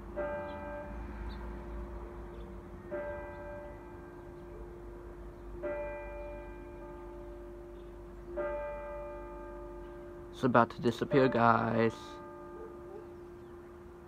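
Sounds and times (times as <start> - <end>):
church bell tolling: 0.0 - 14.0.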